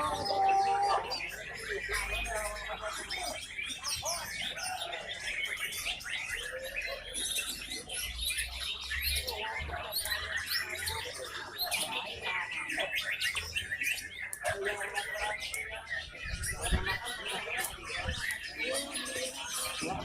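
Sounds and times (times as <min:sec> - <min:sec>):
birds singing whistles and trills: 0:00.0 - 0:20.0.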